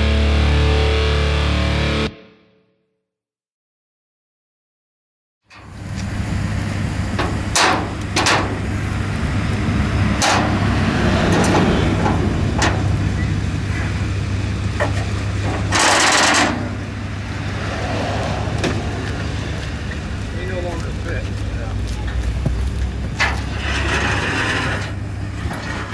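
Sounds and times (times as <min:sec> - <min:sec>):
vehicle engine idling: 0:05.6 - 0:25.9
sharp metal clanks: 0:14.9 - 0:16.9.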